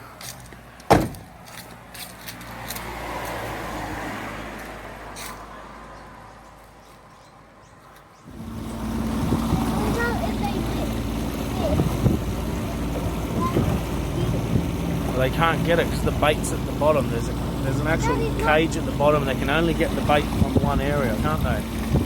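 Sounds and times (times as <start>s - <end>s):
motorboat engine running: 8.3s - 22.0s.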